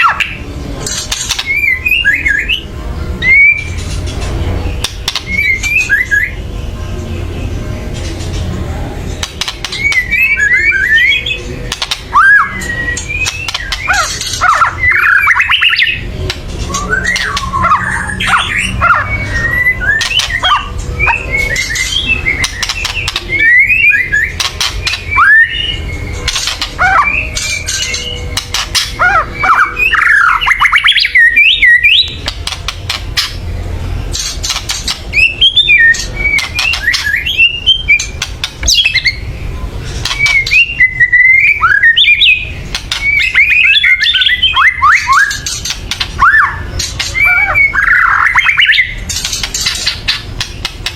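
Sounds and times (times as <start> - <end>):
bird rattling and chattering calls: 0.0 - 1.7, 3.6 - 6.0, 11.6 - 12.2, 13.0 - 31.0, 32.0 - 41.0, 41.9 - 50.9.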